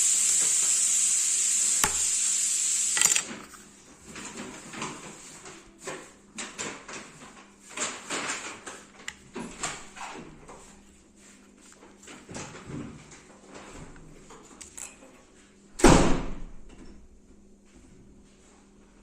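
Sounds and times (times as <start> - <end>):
steady hiss: 0.0 - 3.0.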